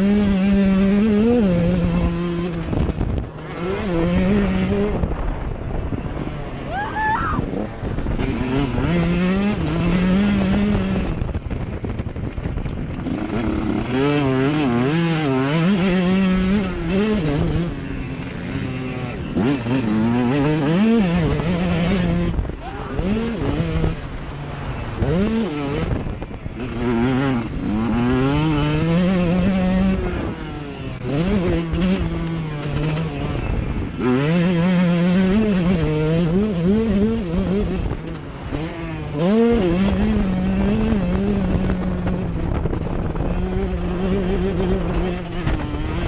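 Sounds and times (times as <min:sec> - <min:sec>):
motocross bike engines revving: 0:00.0 - 0:46.0.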